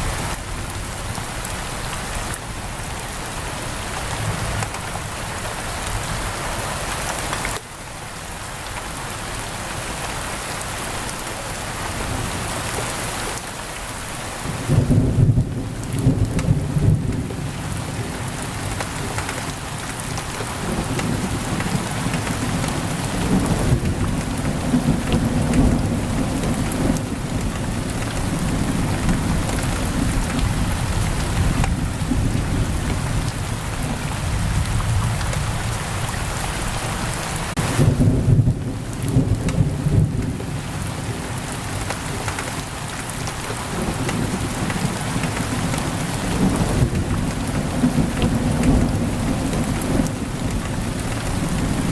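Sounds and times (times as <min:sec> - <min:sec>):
rain pouring on a window: 0:00.0 - 0:51.9
low thunder rumbling: 0:14.4 - 0:18.6, 0:20.4 - 0:36.2, 0:37.6 - 0:41.4, 0:43.4 - 0:51.9.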